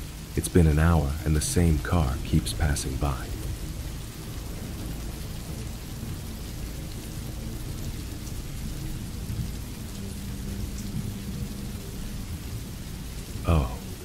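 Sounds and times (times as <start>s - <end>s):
rain falling steadily: 0.0s - 14.0s.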